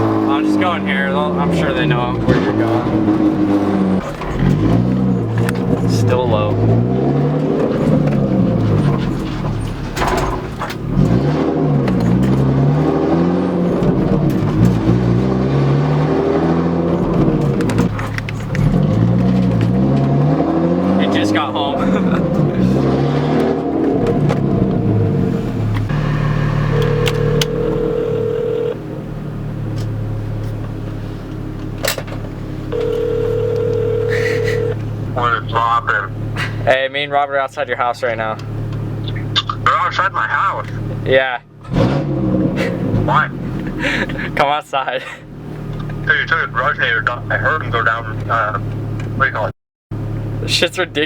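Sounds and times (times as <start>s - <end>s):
car exhaust revving: 0.0s - 36.7s
exhaust crackle: 0.0s - 36.7s
loud car exhaust idling: 23.7s - 30.3s.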